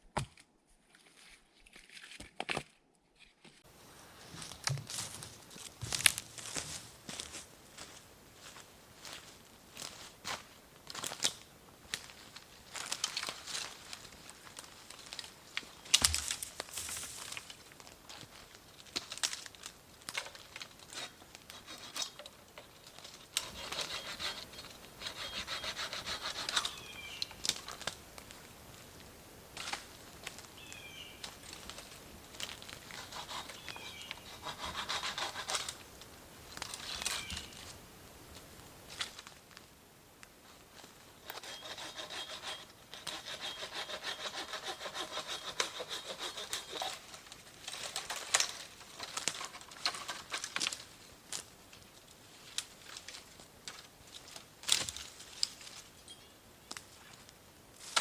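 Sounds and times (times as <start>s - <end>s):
hand saw cutting wood: 20.9s - 22.2s, 23.4s - 26.8s, 32.9s - 35.8s, 41.2s - 47.1s.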